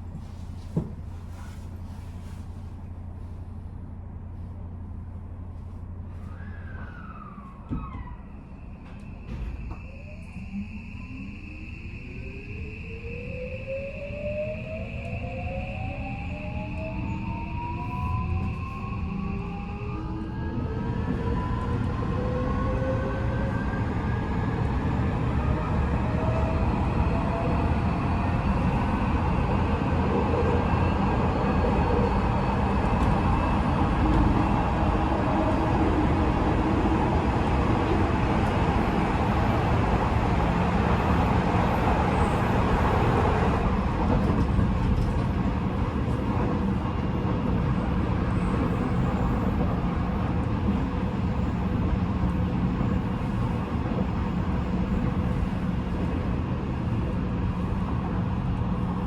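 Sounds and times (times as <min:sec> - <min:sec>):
wheels rumbling on rails: 0:15.8 - 0:59.0.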